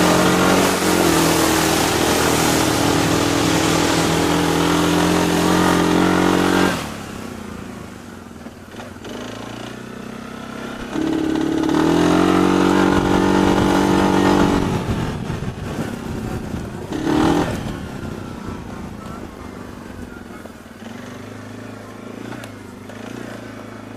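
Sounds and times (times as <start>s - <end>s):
engine revving hard: 0.0s - 7.7s, 8.7s - 15.8s, 16.8s - 18.0s.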